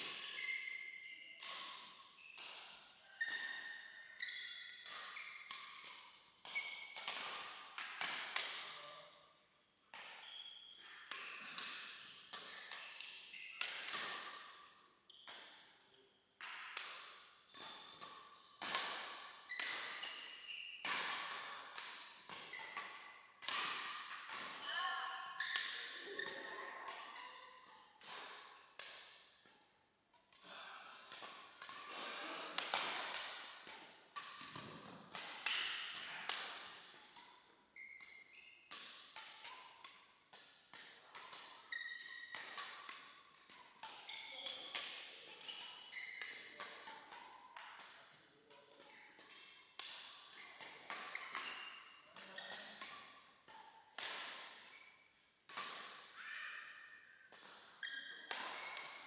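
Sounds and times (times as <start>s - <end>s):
rackets hitting shuttlecock: 0.0s - 8.9s, 9.9s - 15.8s, 16.4s - 59.0s
shoe squeaks on court floor: 0.1s - 2.4s, 3.1s - 5.6s, 10.2s - 14.1s, 19.5s - 20.8s, 23.8s - 27.8s, 37.8s - 38.7s, 41.6s - 42.8s, 43.5s - 44.9s, 45.5s - 47.4s, 50.4s - 53.1s, 56.2s - 59.0s.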